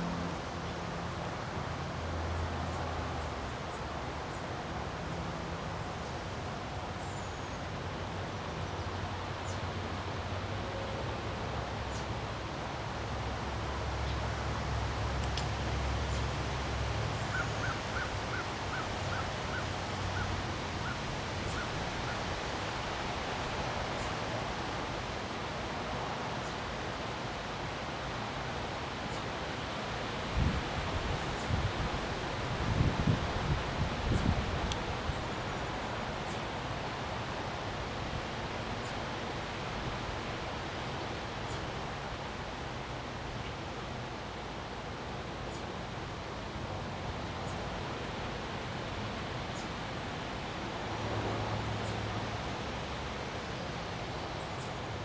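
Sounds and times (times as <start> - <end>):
wind buffeting microphone: 30.3 - 35.3.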